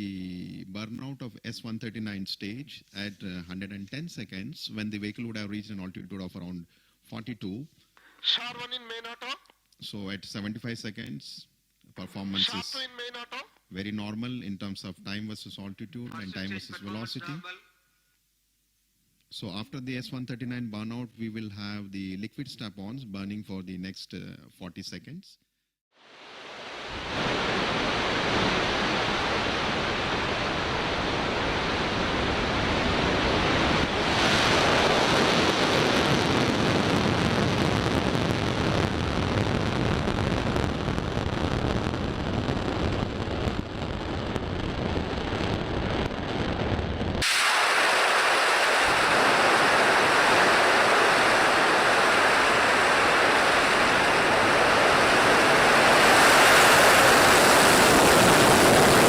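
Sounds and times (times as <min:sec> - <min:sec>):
rocket engine roaring: 0:26.4 - 0:59.0
high-pitched rocket hiss: 0:47.2 - 0:59.0.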